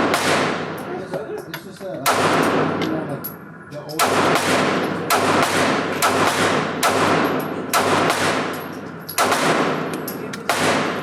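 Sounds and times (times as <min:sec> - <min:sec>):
gunshots with echo: 0:00.0 - 0:00.9, 0:02.0 - 0:03.0, 0:04.0 - 0:11.0.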